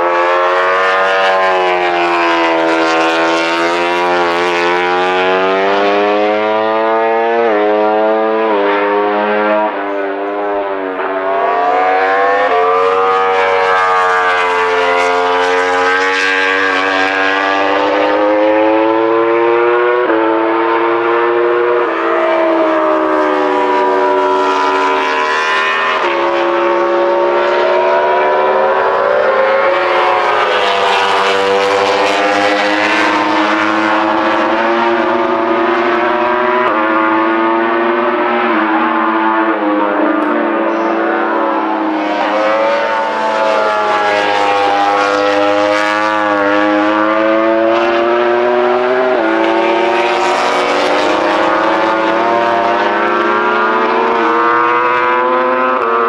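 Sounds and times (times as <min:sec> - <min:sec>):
racing motorcycle engines at full throttle: 0:00.0 - 0:56.0.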